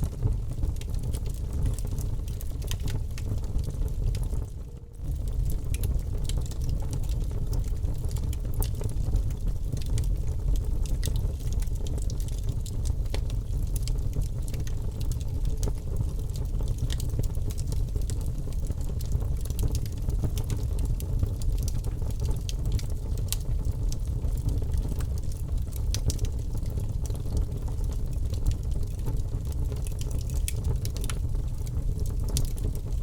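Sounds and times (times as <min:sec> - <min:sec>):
wood fire crackling and popping: 0:00.0 - 0:33.0
low rumble: 0:03.6 - 0:06.1.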